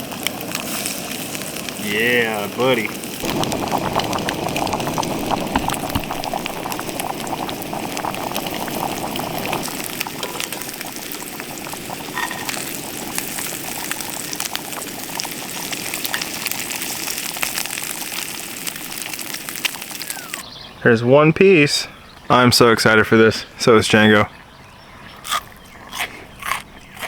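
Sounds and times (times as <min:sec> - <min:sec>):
fish frying in hot oil: 0:00.0 - 0:20.4.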